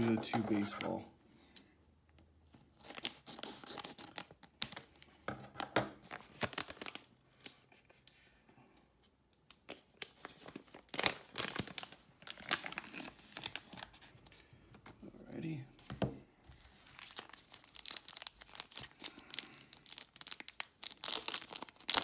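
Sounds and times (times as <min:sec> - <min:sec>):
wrapper crinkling and tearing: 0:02.8 - 0:05.2, 0:06.0 - 0:07.6, 0:10.0 - 0:14.0, 0:16.6 - 0:22.0.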